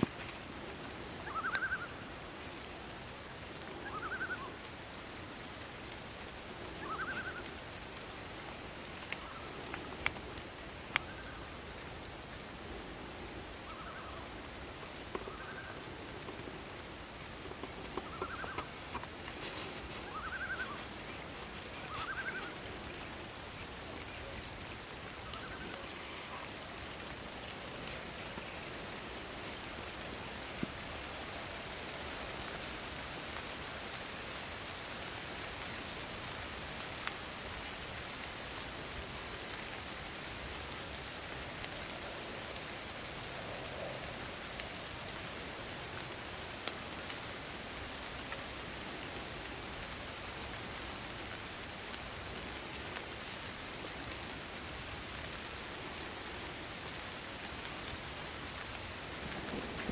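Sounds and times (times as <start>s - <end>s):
rain hissing: 0.0s - 59.9s
animal call: 1.2s - 2.0s, 6.7s - 7.6s, 18.0s - 31.9s
sharp water drips: 14.1s - 52.3s.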